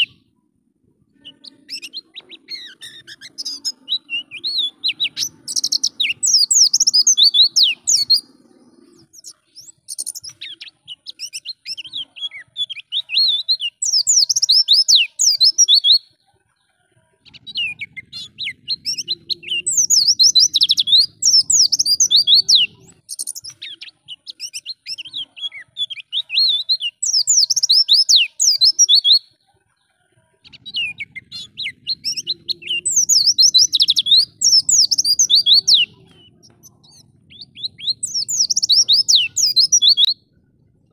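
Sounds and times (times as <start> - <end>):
white-eye twittering song: 1.1 - 16.2, 17.2 - 29.4, 30.4 - 40.4
faint low hum: 29.4 - 40.9.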